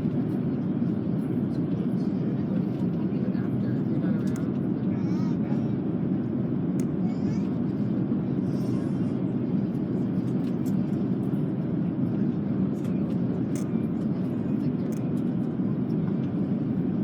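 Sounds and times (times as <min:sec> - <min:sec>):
aircraft cabin engine rumble: 0:00.0 - 0:17.0.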